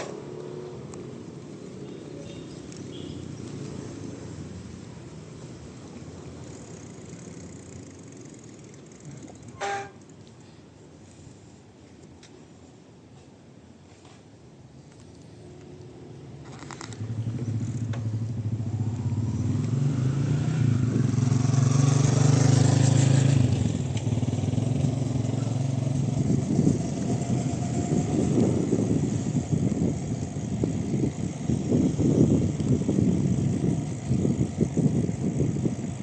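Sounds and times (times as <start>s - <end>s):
low rumbling and buffeting: 5.8s - 36.0s
vehicle engine passing: 16.0s - 34.4s.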